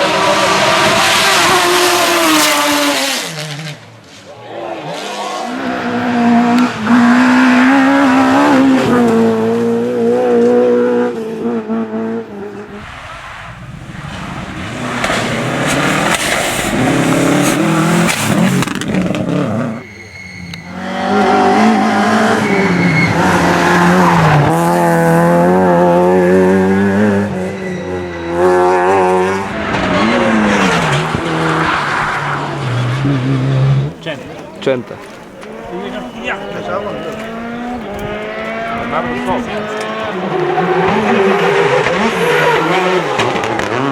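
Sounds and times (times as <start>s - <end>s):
rally car engines at full throttle: 0.0s - 43.9s
tyre squeal: 17.1s - 23.8s, 26.9s - 33.9s, 35.6s - 38.4s.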